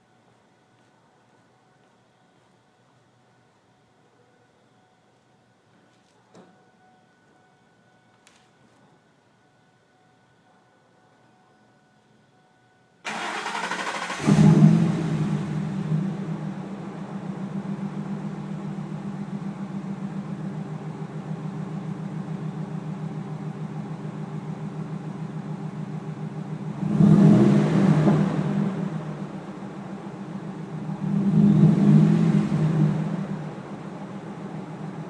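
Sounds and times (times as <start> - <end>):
engine cranking: 13.1 - 14.7
engine revving: 13.1 - 18.6, 26.6 - 29.6, 30.6 - 35.0
vee eight engine idling: 13.1 - 35.0.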